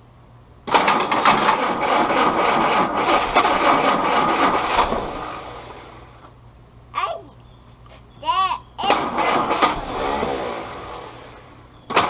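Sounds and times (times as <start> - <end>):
engine cranked by starter: 0.6 - 6.3, 8.8 - 12.0.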